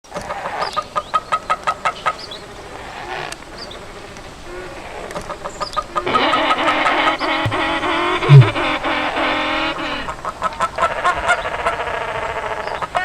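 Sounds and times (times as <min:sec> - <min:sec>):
soft chirps: 0:07.2 - 0:08.8
creature clicking clucks: 0:07.5 - 0:08.7
wavering pitched creature call: 0:07.5 - 0:08.8.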